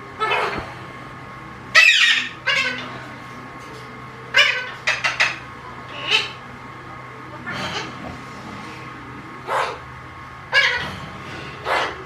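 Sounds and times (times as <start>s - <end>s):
parakeet meow-like calls: 1.7s - 2.9s, 4.3s - 6.4s, 10.5s - 11.0s.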